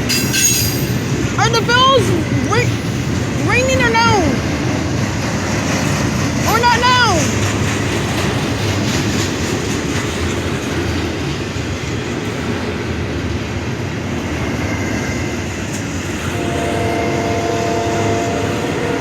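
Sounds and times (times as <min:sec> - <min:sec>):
train wheels rumbling on rails: 0:00.0 - 0:19.0
train horn chord: 0:16.3 - 0:19.0.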